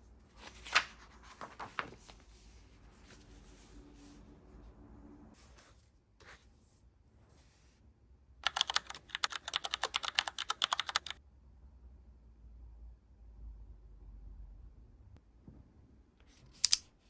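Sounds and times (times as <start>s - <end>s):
fast typing on a keyboard: 8.4s - 11.2s.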